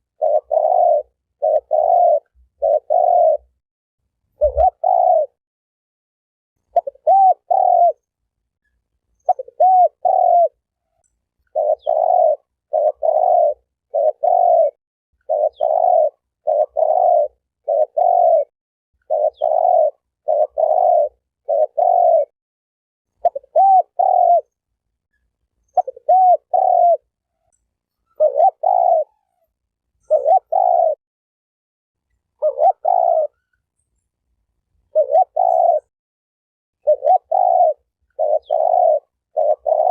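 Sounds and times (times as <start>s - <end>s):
dove cooing: 0.0s - 3.6s, 4.4s - 5.4s, 6.6s - 8.0s, 9.2s - 22.3s, 23.2s - 24.6s, 25.7s - 31.0s, 32.4s - 33.6s, 34.9s - 35.9s, 36.8s - 39.9s.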